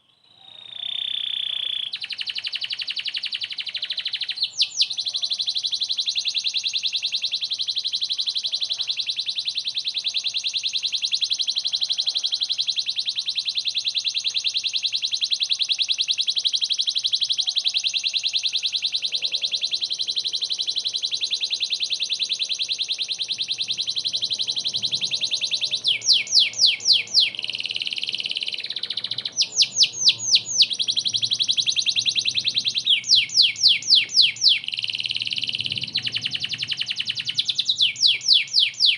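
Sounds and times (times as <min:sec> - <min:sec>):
canary fast rolling trill: 0:00.6 - 0:38.9
canary downward whistled notes: 0:23.1 - 0:38.9.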